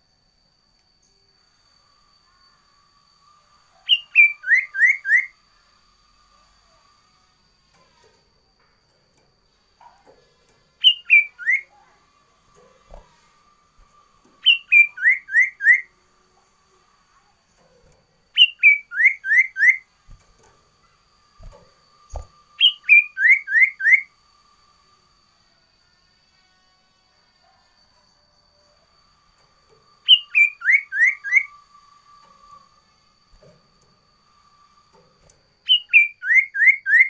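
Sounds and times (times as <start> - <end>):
songbird whistling phrases: 3.7 - 5.4, 10.8 - 12.0, 14.4 - 16.0, 18.4 - 19.9, 22.2 - 24.1, 30.0 - 31.8, 35.6 - 37.0.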